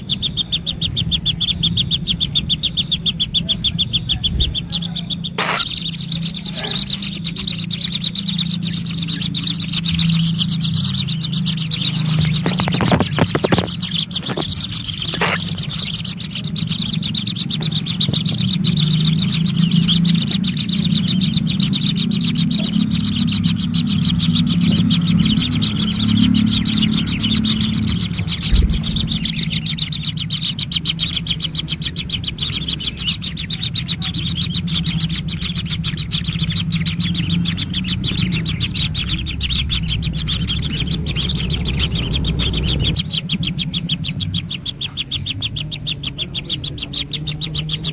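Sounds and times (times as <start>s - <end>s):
birds chirping in a trill: 0.0s - 47.9s
steady low hum: 0.0s - 47.9s.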